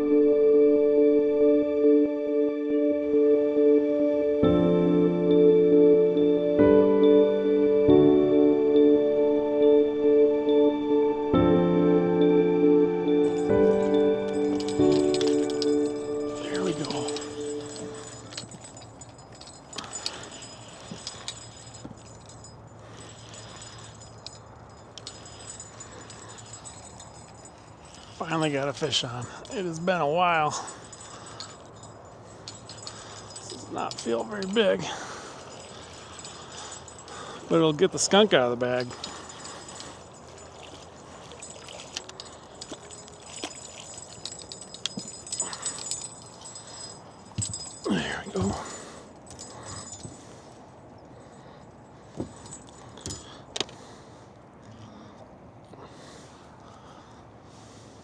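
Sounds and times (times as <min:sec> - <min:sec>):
faint background noise: 0:00.0 - 0:58.0
light metallic clinks and jingles: 0:05.3 - 0:58.0
wind and water hiss: 0:13.1 - 0:55.0.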